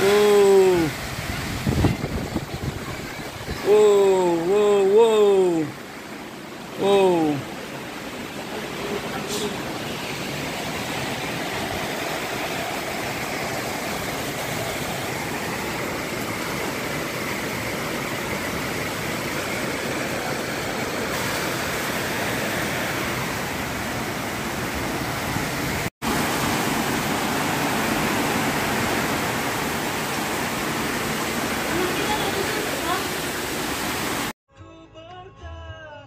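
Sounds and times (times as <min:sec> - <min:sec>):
strong storm wind rushing: 0:00.0 - 0:04.3.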